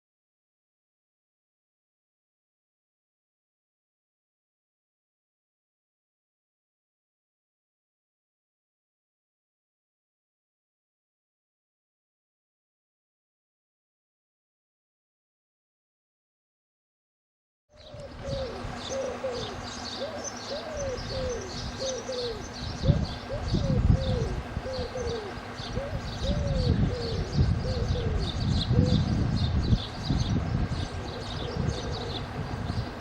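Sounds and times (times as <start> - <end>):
birds calling: 17.7 - 33.0
faint steady hum: 17.8 - 33.0
wind buffeting microphone: 17.8 - 33.0.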